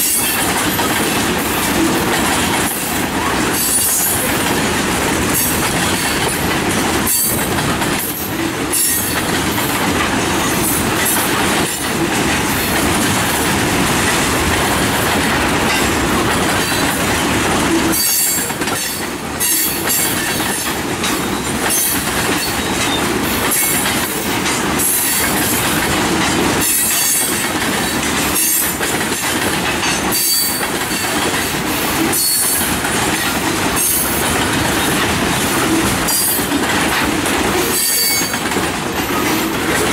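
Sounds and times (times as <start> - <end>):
freight train wheels rumbling: 0.0 - 39.9
wheel squeal and clatter: 8.1 - 9.3, 17.8 - 23.9, 29.8 - 31.2, 32.1 - 34.1, 36.1 - 39.7.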